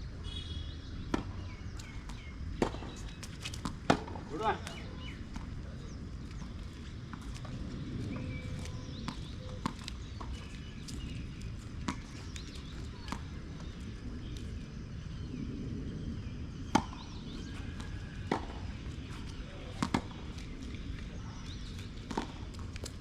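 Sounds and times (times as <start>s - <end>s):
tennis ball bouncing: 1.0s - 5.6s, 6.4s - 13.8s, 16.7s - 20.6s, 21.5s - 23.0s
racket hitting tennis ball: 1.1s - 5.5s, 16.7s - 20.6s.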